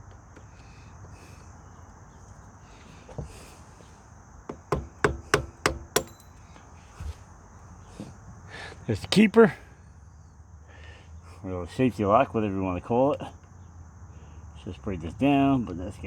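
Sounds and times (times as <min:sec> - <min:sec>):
metal tool tapping on chain: 0:04.8 - 0:06.5.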